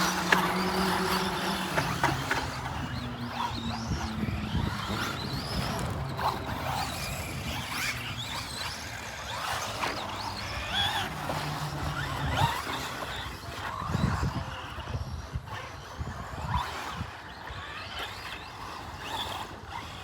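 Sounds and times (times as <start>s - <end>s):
electric rc car motors whining: 0.0s - 20.0s.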